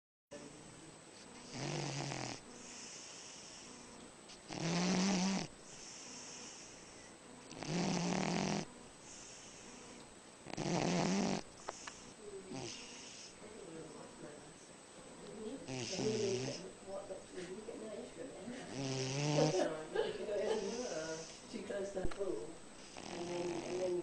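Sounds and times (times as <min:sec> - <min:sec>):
breathy hiss: 0:01.1 - 0:13.8, 0:18.4 - 0:21.7, 0:22.7 - 0:24.0
dog snoring: 0:01.4 - 0:13.4, 0:15.6 - 0:16.6, 0:18.6 - 0:19.8, 0:20.5 - 0:21.4, 0:22.8 - 0:24.0.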